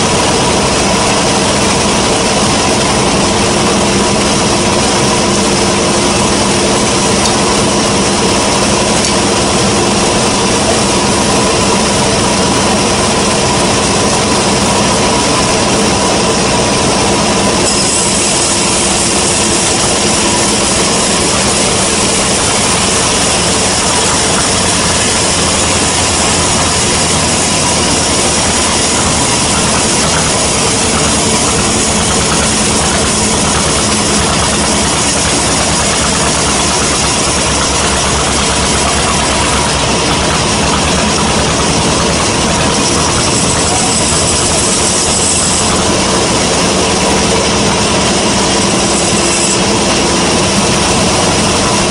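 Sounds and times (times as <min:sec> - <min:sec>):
band saw running with hiss: 0:00.0 - 0:51.9.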